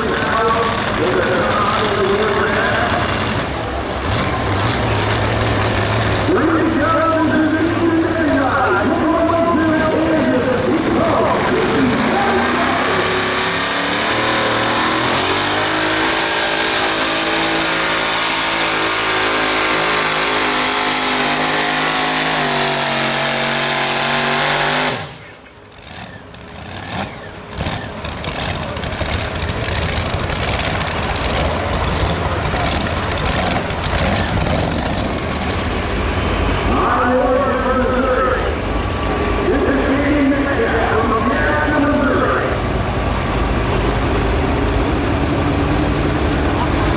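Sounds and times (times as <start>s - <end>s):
tractor engine at high revs: 0.0s - 46.9s
rumble with crackling: 27.5s - 36.4s.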